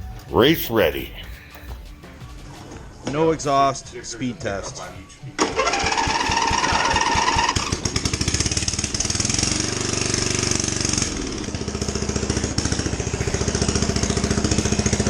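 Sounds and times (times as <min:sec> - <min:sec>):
mower engine open exhaust popping: 0:05.4 - 0:15.0.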